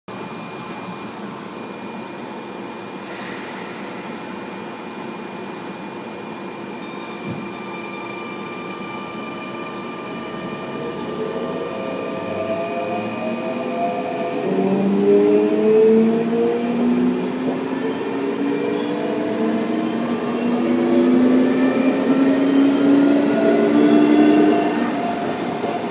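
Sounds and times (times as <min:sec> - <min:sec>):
electric train humming: 0:04.0 - 0:25.9.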